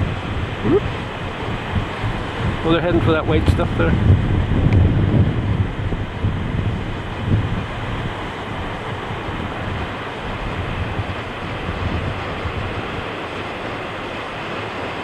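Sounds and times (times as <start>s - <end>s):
wind buffeting microphone: 0.0s - 14.6s
sea surf: 0.0s - 15.0s.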